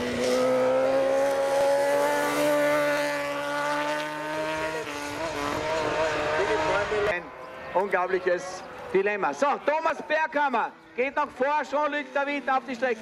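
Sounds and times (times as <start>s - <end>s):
racing motorcycle engine revving: 0.0s - 9.1s.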